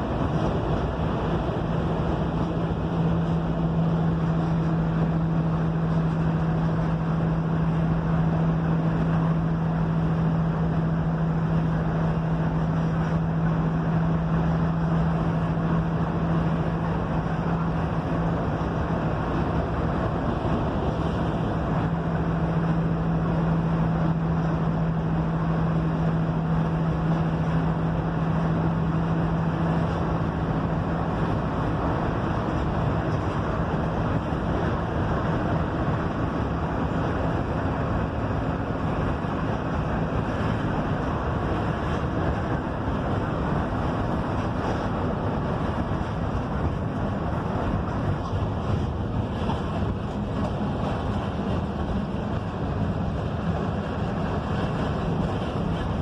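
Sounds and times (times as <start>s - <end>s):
bus engine drone: 0.0s - 56.0s
road noise: 0.0s - 56.0s
steady low hum: 0.0s - 56.0s.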